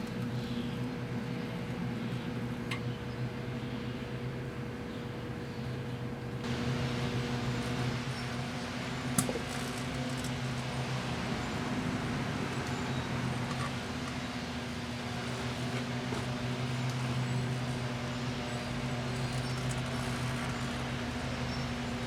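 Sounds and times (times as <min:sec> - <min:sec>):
cooling fans: 0:00.0 - 0:22.0
microwave transformer hum: 0:00.0 - 0:22.0.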